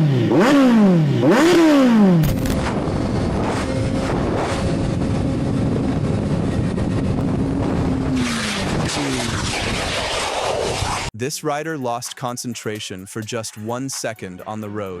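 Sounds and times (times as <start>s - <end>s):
motorcycle engine running: 0.0s - 9.2s
wind rushing over microphone: 2.2s - 11.1s.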